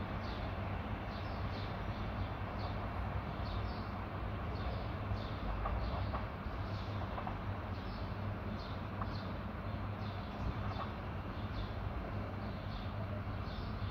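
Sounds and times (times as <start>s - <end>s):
small birds chirping: 0.2s - 13.9s.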